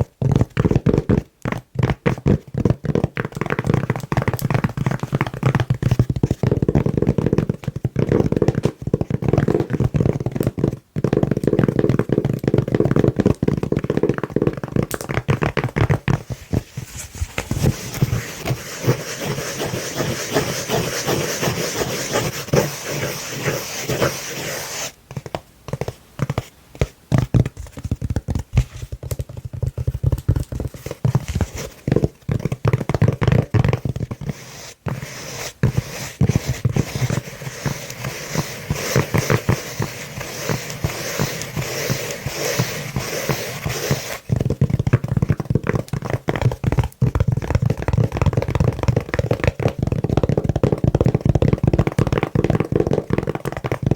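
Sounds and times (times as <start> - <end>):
nails scratching on velvet: 16.1 - 25.0, 33.9 - 44.4
nails tapping on velvet lid: 17.6 - 53.9.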